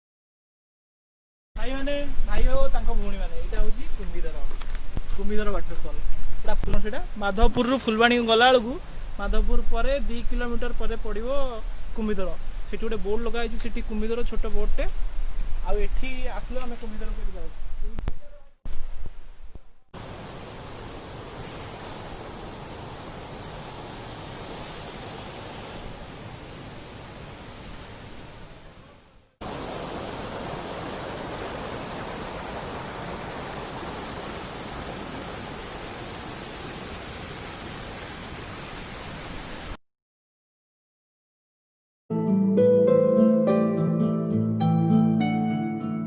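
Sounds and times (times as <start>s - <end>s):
waterfall pouring: 29.4s - 39.8s.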